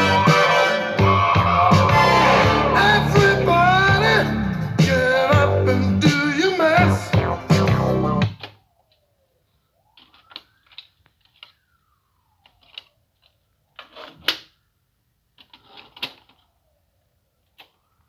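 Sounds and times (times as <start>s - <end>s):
tape spool whine: 0.0s - 5.4s.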